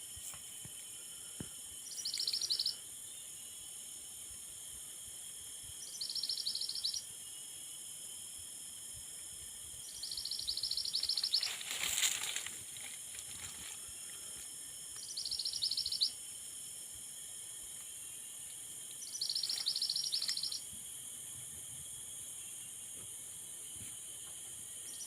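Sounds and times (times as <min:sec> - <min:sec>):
constant high hiss: 0:00.0 - 0:25.0
bird rapid pulsed trill: 0:01.8 - 0:03.4, 0:05.8 - 0:07.5, 0:09.8 - 0:11.6, 0:15.0 - 0:16.3, 0:19.0 - 0:20.6.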